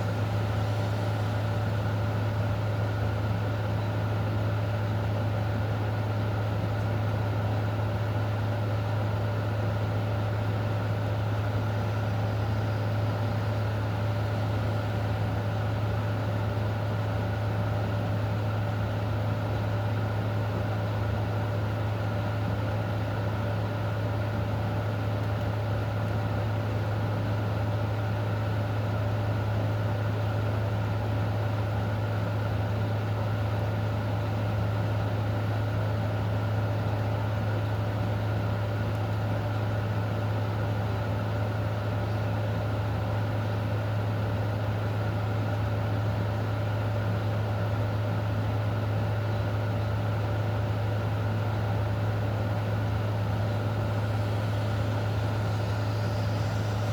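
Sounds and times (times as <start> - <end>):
low mechanical hum: 0.0 - 56.9
faint constant tone: 19.8 - 56.9.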